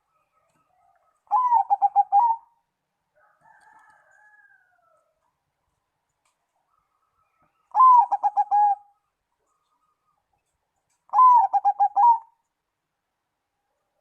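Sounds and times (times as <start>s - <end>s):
dove cooing: 0.7s - 2.6s, 7.7s - 9.0s, 11.1s - 12.4s.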